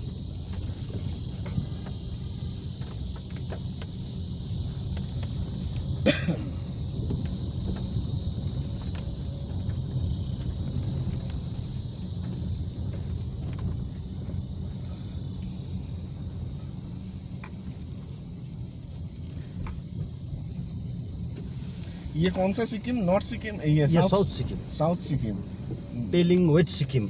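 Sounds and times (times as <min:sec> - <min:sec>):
car engine and road rumble: 0:00.0 - 0:27.0
tyre hiss on wet road: 0:21.3 - 0:25.4.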